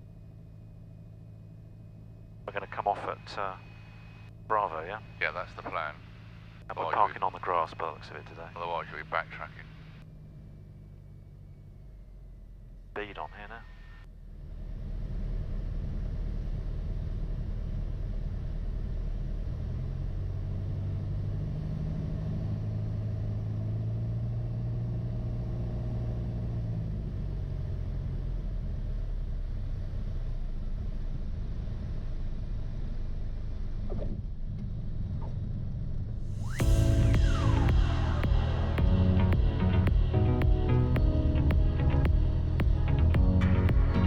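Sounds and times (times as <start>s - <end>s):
light aircraft engine and propeller: 0.0s - 24.0s.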